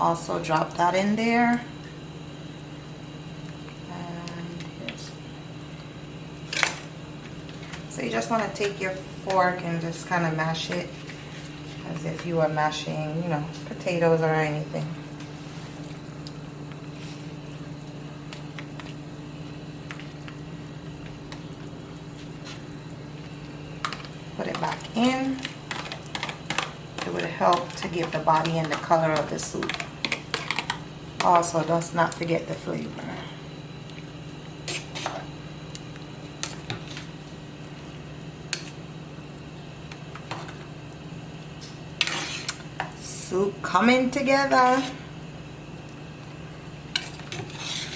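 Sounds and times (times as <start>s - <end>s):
steady low hum: 0.0s - 47.9s
utensil scraping soup pot: 34.6s - 35.3s, 42.0s - 42.6s, 46.9s - 47.9s.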